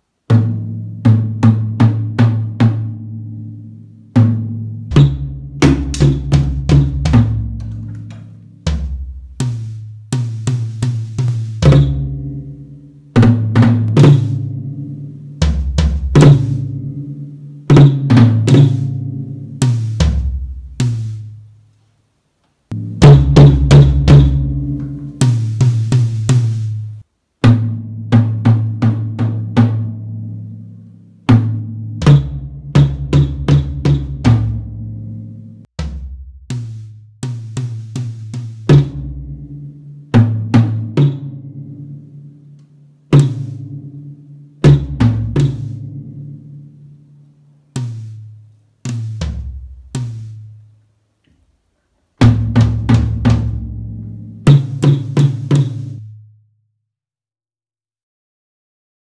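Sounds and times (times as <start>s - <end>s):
drum kit playing: 4.2s - 21.5s, 22.7s - 29.8s, 31.3s - 34.7s, 35.8s - 41.4s, 43.1s - 46.6s, 47.8s - 50.7s, 52.2s - 56.0s.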